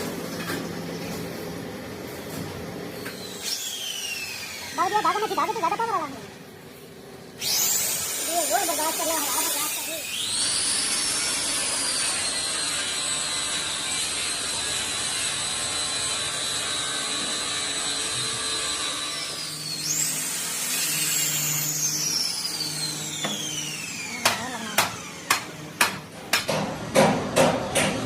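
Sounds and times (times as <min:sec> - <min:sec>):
power tool whining: 0:02.9 - 0:06.3, 0:07.3 - 0:26.2.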